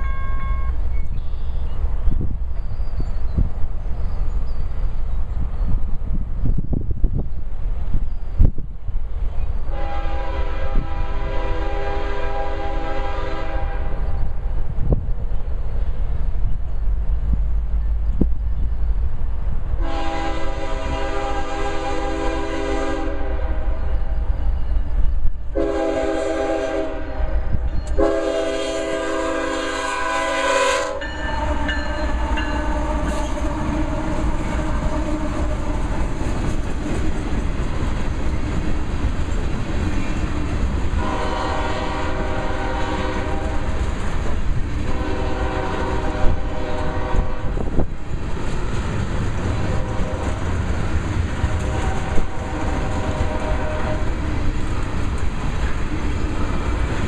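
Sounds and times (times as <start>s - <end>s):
locomotive horn blasts: 0.0s - 0.9s, 9.7s - 14.1s, 19.8s - 24.2s, 25.5s - 36.1s, 41.0s - 43.6s, 44.8s - 47.6s, 49.6s - 50.5s, 51.4s - 54.2s
train wheels rolling: 0.0s - 57.0s
wheels clacking over rail joints: 31.0s - 41.0s.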